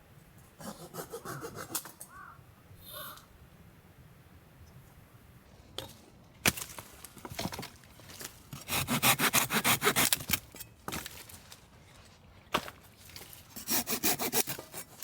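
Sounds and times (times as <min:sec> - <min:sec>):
hand saw cutting wood: 0:00.6 - 0:02.0, 0:08.6 - 0:10.4, 0:13.5 - 0:15.0.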